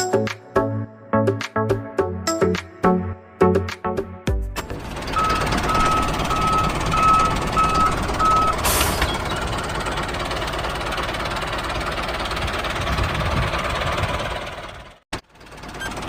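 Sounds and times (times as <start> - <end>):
reversing alarm beeping: 5.0 - 9.6.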